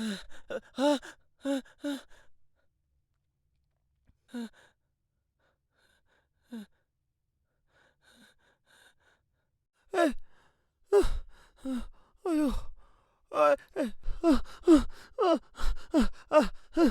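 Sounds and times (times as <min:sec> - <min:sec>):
man panting heavily: 0:11.0 - 0:16.9.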